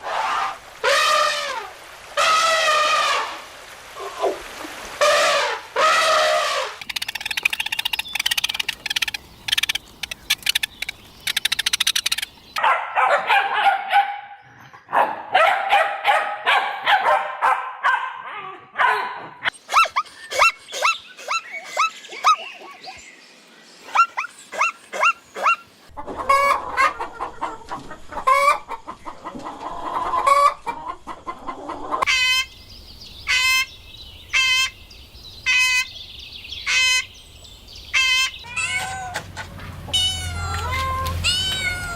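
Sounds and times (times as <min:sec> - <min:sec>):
hens clucking: 0:25.9 - 0:32.4, 0:37.9 - 0:41.9
roosters crowing: 0:38.0 - 0:41.9.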